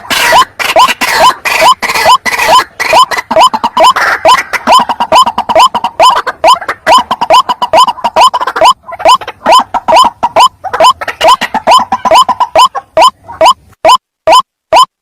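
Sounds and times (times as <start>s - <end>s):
waterhen calling: 0.0s - 14.9s.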